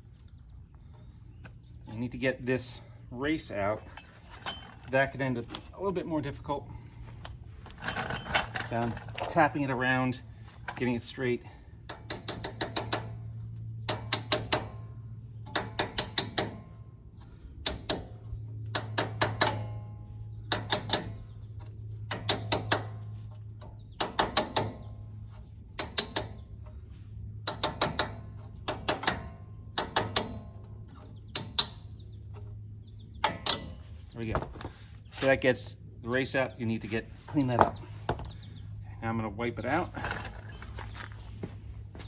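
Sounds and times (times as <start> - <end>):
hammer tapping metal: 11.9 - 13.1, 13.9 - 14.8, 18.7 - 19.7, 27.4 - 30.6.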